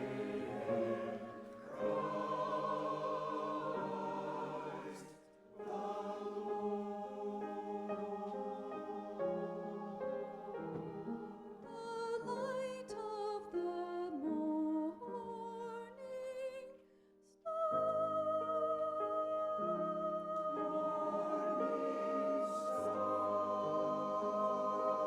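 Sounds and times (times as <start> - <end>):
people singing christmas music: 0.0 - 12.5, 19.6 - 25.0.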